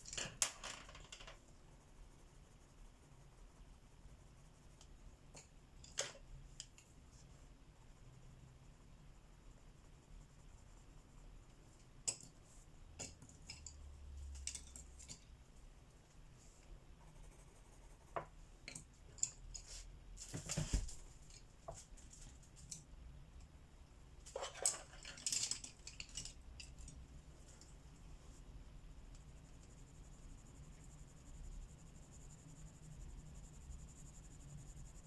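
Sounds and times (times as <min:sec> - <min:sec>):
colouring supplies clicking and tapping: 0:00.0 - 0:02.3, 0:04.7 - 0:07.0, 0:11.5 - 0:15.4, 0:24.2 - 0:27.8.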